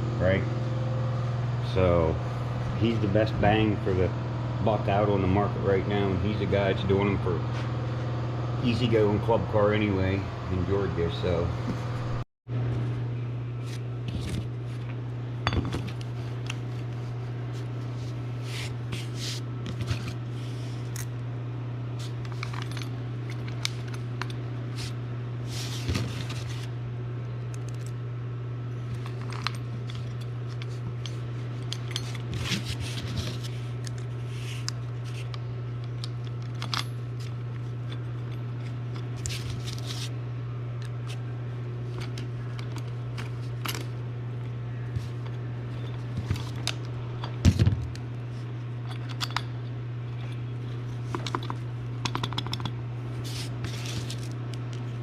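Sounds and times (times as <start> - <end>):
steady low hum: 0.0 - 55.0
metal parts clinking: 29.0 - 33.4.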